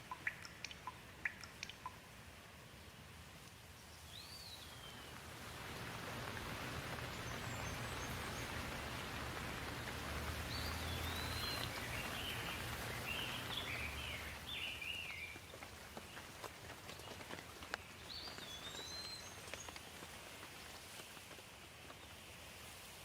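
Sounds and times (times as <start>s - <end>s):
bird chirping: 0.0s - 2.0s, 3.8s - 20.1s
steady rain falling: 0.0s - 23.0s.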